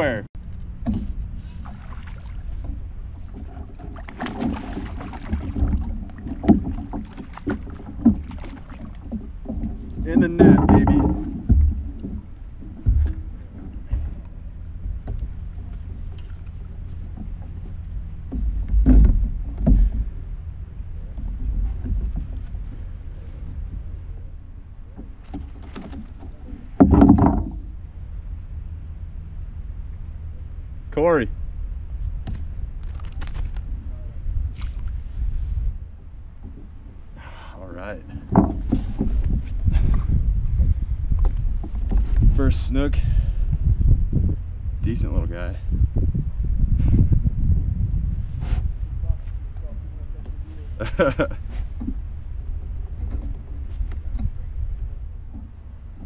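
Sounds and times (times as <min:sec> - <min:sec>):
wind rumble on microphone: 0:00.0 - 0:56.0
sharp knocks: 0:03.7 - 0:14.2, 0:25.0 - 0:27.7, 0:38.3 - 0:39.2
fish splashing at water surface: 0:03.9 - 0:09.0.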